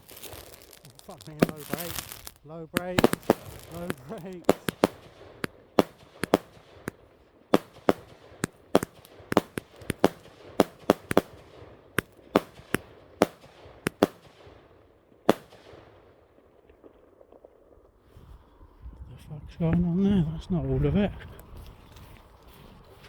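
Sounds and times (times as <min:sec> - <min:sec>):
firework bangs: 0:00.0 - 0:17.5.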